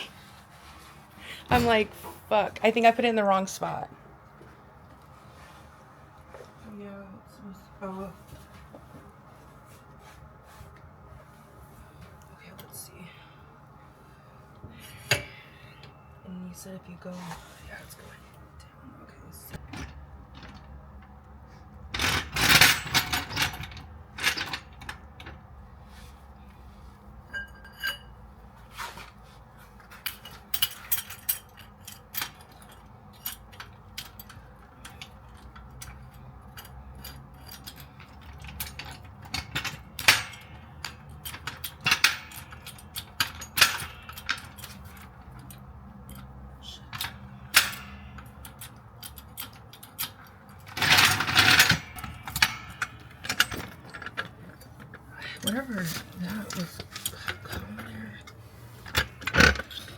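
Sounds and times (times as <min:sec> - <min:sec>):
car jack clanking and rattling: 0:21.8 - 0:25.4, 0:29.9 - 0:46.3, 0:46.9 - 0:59.9.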